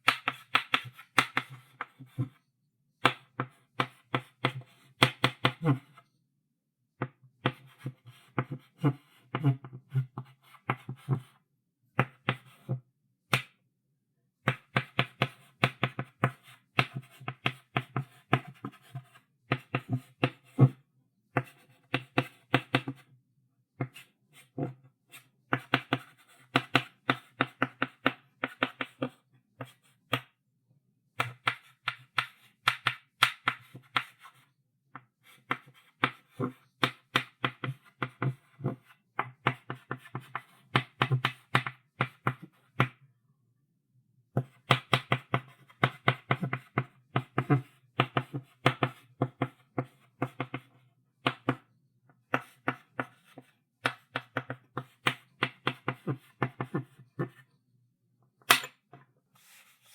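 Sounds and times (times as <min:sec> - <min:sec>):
chalk writing on chalkboard: 0:52.3 - 0:57.4.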